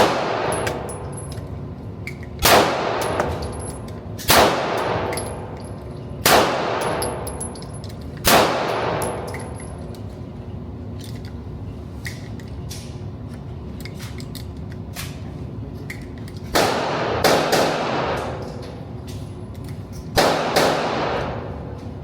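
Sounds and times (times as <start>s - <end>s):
gunshots with ringing tail: 4.3s - 5.1s, 6.2s - 7.2s, 8.3s - 9.3s, 20.2s - 21.4s.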